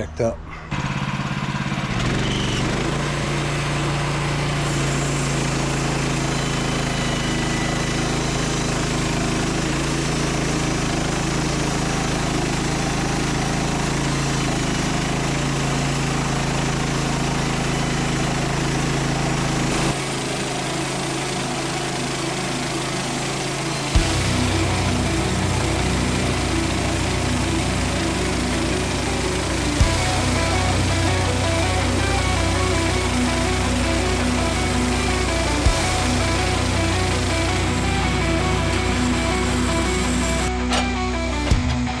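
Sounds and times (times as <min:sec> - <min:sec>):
small gasoline engine running: 0:00.7 - 0:42.0.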